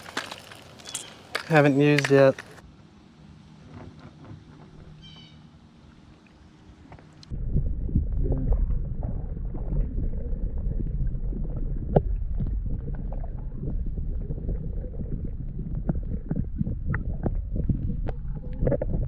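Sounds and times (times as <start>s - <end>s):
small knocks and clicks: 0.0s - 2.6s
wind buffeting microphone: 7.3s - 19.0s.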